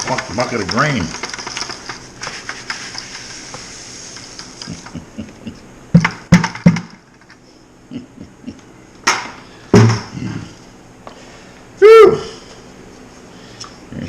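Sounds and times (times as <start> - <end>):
sharp knocks: 6.0 - 7.0, 9.1 - 10.2.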